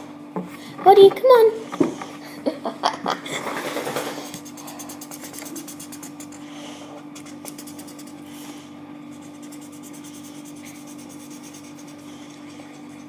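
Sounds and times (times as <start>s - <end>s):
low electrical hum: 0.0s - 13.0s
drawing tool scratching on paper: 4.3s - 6.4s, 7.2s - 8.3s, 9.1s - 12.2s.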